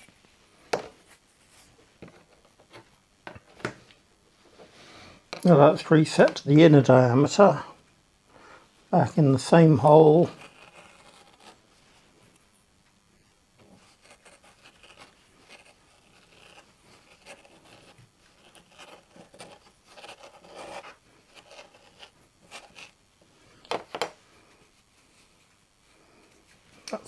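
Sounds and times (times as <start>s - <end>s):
blade scraping through felt: 10.2s - 11.6s, 13.8s - 23.0s.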